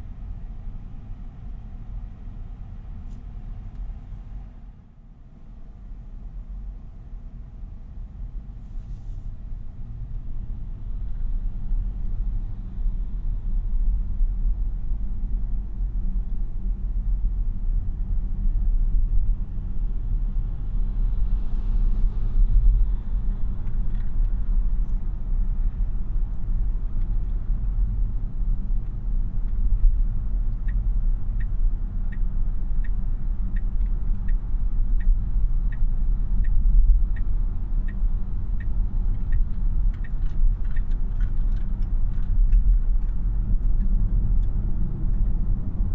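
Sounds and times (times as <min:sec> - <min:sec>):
road and tyre rumble: 0:00.0 - 0:45.9
turn signal ticking: 0:28.7 - 0:45.3.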